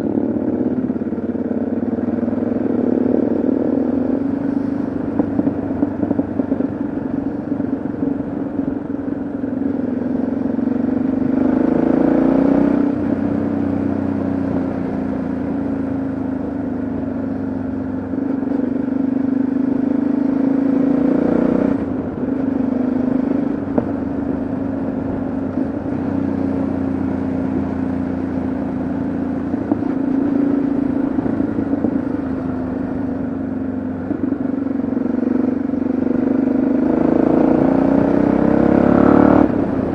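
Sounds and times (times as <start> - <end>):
motorcycle engine running: 0.0 - 39.9
wind noise: 4.2 - 9.3, 28.3 - 34.6.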